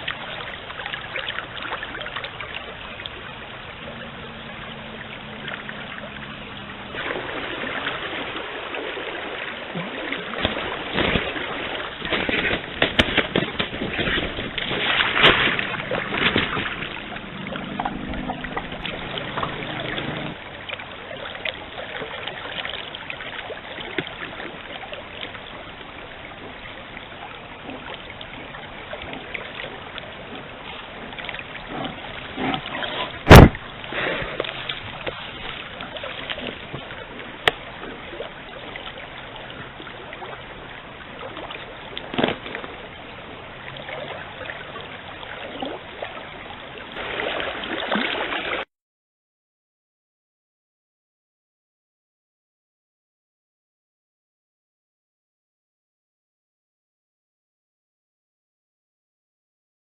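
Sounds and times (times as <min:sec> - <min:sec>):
stream water running: 0:00.0 - 0:48.7
water splashing and sloshing: 0:00.0 - 0:48.7.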